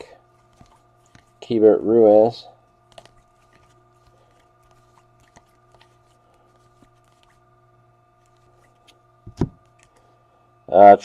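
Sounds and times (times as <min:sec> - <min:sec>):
steady low hum: 0:00.0 - 0:11.0
cards clicking and rustling: 0:00.4 - 0:01.4, 0:02.9 - 0:07.4, 0:08.2 - 0:10.0.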